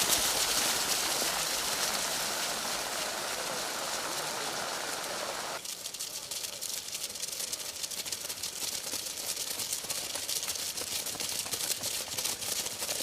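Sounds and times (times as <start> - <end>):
heavy rain pattering: 0.0 - 8.3.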